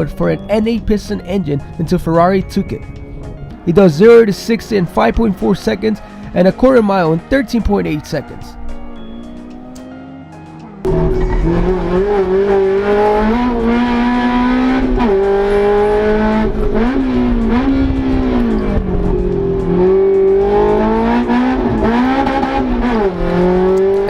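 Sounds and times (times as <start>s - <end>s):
car engine revving high: 8.6s - 24.0s.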